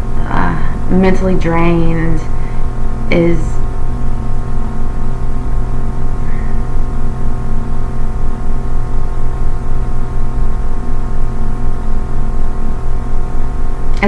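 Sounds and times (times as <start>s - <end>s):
ambient drone music: 0.0s - 14.0s.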